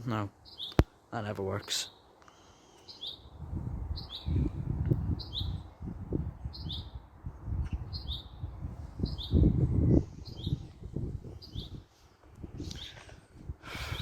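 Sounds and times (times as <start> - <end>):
bird chirping: 0.4 - 0.8, 1.6 - 4.5, 5.1 - 5.7, 6.4 - 10.7, 11.3 - 11.8.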